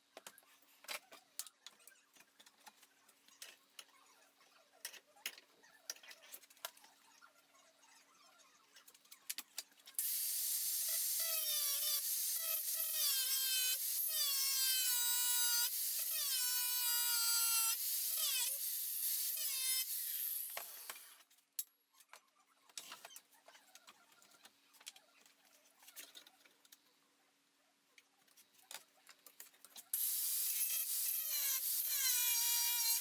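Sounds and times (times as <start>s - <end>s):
angle grinder grinding metal: 10.0s - 21.2s, 30.0s - 33.0s.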